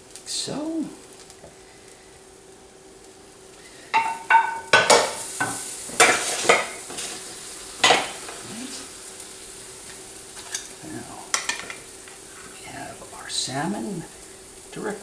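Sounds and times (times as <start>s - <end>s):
metal utensil knocking on cookware: 4.0s - 6.7s.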